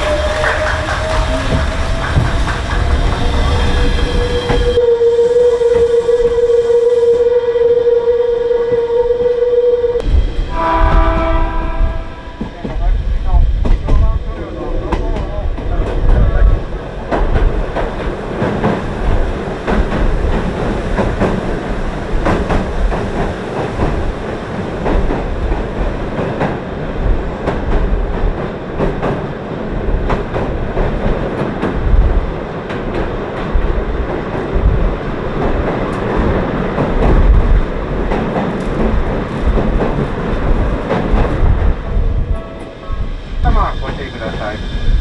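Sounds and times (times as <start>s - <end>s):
train rumbling: 0.0s - 45.0s
wheels clicking over rail joints: 13.6s - 41.8s.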